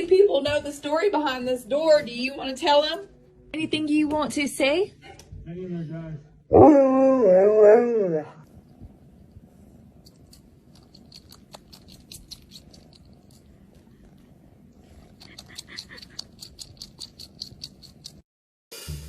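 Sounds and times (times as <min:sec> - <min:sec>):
cat purring: 0:08.3 - 0:18.2.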